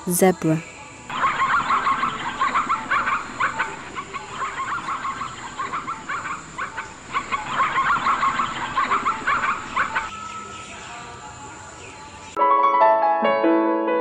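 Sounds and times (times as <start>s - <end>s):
zebra barking yelps: 1.1s - 10.5s.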